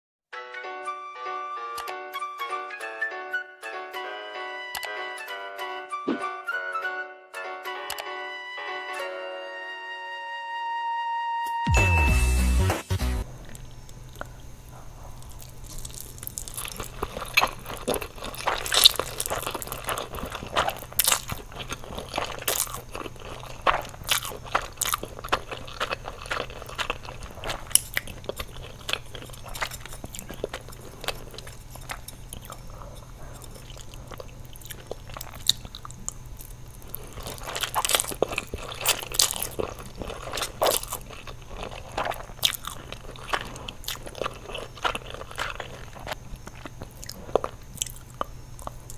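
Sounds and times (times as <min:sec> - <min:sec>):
steady low hum: 0:12.4 - 0:48.9
crunchy food being chewed: 0:13.2 - 0:48.9.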